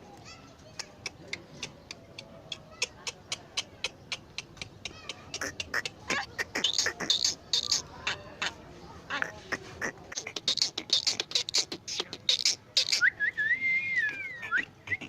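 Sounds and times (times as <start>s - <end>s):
bird clicks and harsh chattering: 0.6s - 8.5s, 9.1s - 13.1s.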